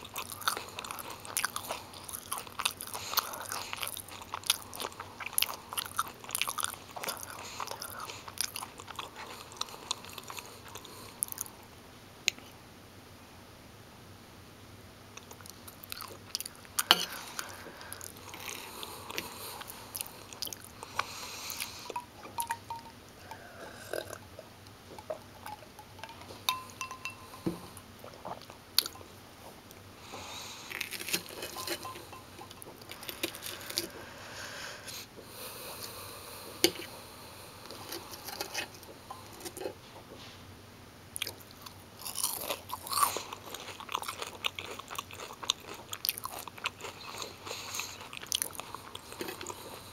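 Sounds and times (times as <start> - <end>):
person chewing crunchy food: 0.0 - 11.5, 15.2 - 29.1, 29.7 - 34.3, 41.2 - 49.9.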